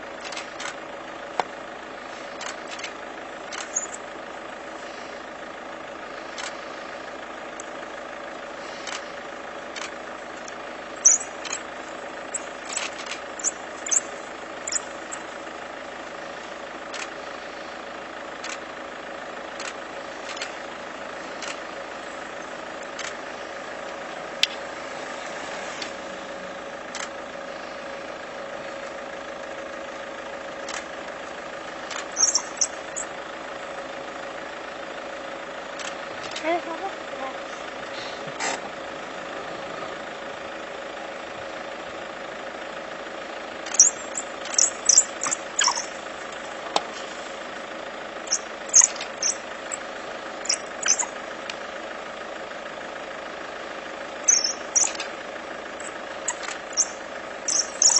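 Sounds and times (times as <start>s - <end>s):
vehicle engine idling: 0.0s - 57.9s
short clicks: 2.4s - 4.0s, 54.3s - 55.2s
brief high-pitched squeaks: 3.6s - 4.0s, 11.0s - 11.6s, 12.3s - 14.1s, 32.2s - 33.1s, 43.7s - 45.9s, 48.3s - 49.4s, 50.5s - 51.1s, 54.3s - 55.1s, 57.5s - 57.9s.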